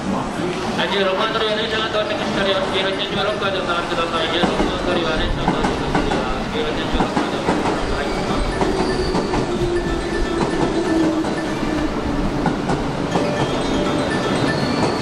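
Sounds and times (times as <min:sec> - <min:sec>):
electric train passing: 0:00.0 - 0:15.0
low train whine: 0:00.0 - 0:15.0.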